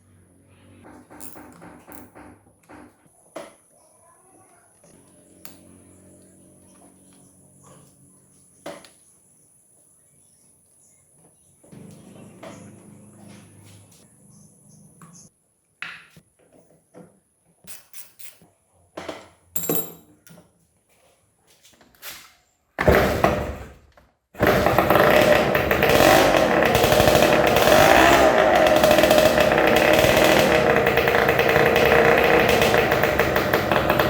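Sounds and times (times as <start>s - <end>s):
two-stroke engine starting and running: 11.7s - 14.4s, 22.8s - 23.8s, 24.4s - 34.0s.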